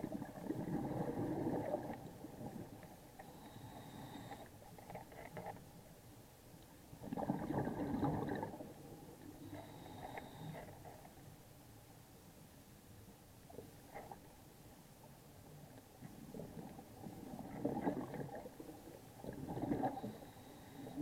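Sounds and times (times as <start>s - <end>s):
underwater regulator bubbles gurgling: 0.0s - 4.3s, 7.0s - 11.0s, 16.0s - 21.0s.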